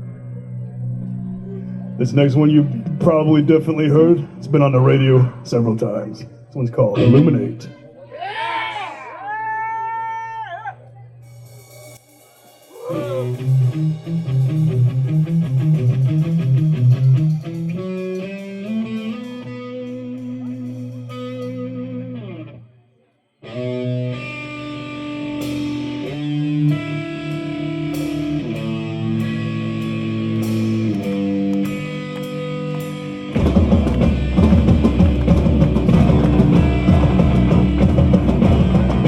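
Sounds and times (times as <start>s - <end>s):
electric guitar playing metal: 11.2s - 22.7s, 23.4s - 39.0s.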